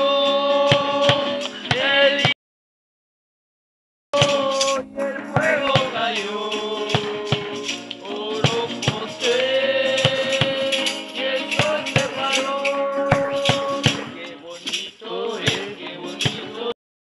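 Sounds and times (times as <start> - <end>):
group singing praise chorus: 4.2 - 16.8
shaken hand percussion: 4.2 - 16.8.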